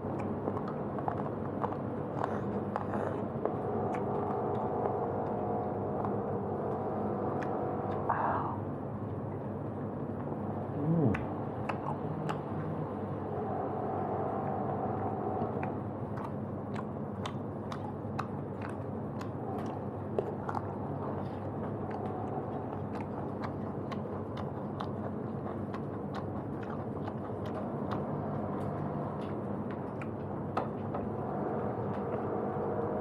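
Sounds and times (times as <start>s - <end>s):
person chewing food: 0.0s - 8.6s, 15.4s - 32.9s
steady low hum: 0.0s - 33.0s.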